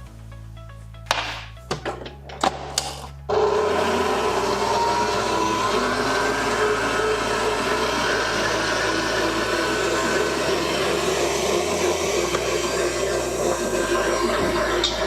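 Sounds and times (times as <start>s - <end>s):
electric stand mixer running: 3.3s - 15.0s.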